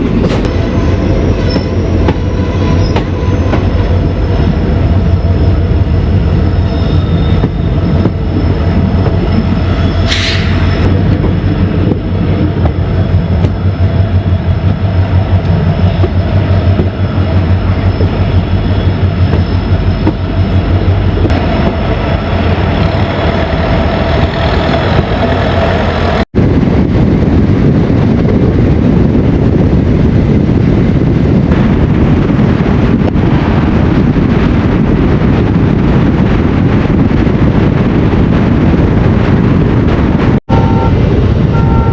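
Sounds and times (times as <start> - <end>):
train rumbling on track: 0.0 - 41.9
train wheel squeal: 0.3 - 26.2.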